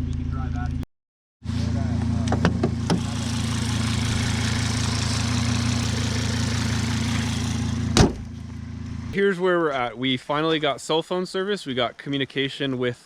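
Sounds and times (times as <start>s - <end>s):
car engine running: 1.5s - 9.2s.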